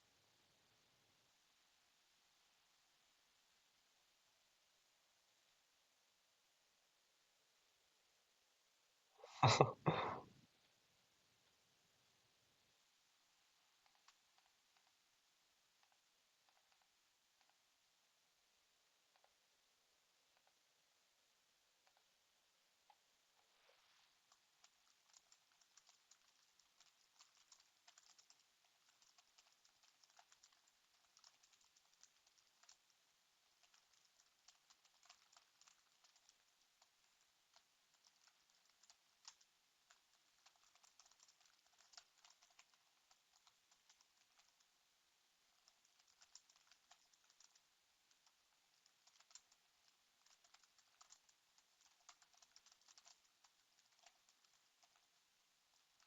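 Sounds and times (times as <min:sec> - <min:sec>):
faint keyboard typing: 0:11.4 - 0:56.0.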